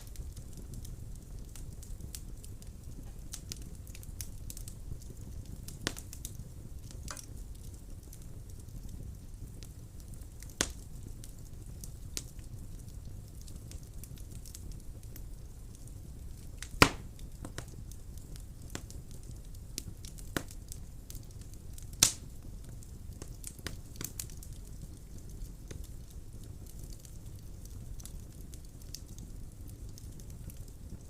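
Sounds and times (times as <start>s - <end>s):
crackles and pops of burning wood: 0.0s - 31.0s
wood fire burning: 0.0s - 31.0s.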